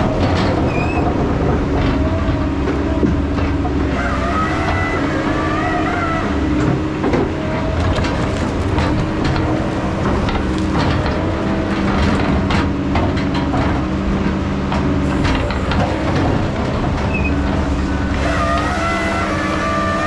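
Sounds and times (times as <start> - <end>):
metallic clanks and knocks: 0.0 - 5.1, 6.4 - 18.8
heavy diesel machine running: 0.0 - 20.0
high squealing tones: 3.9 - 6.6.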